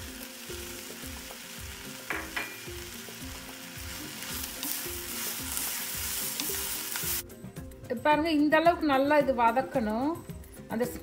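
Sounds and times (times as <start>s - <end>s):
spices sizzling in hot oil: 0.0s - 7.4s.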